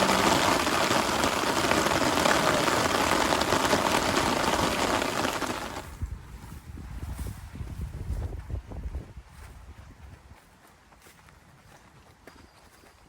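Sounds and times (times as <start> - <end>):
heavy rain: 0.0 - 5.9.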